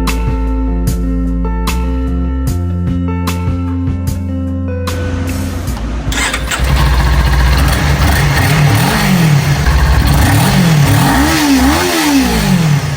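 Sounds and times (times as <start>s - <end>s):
motorcycle engine starting and revving: 5.7s - 12.9s.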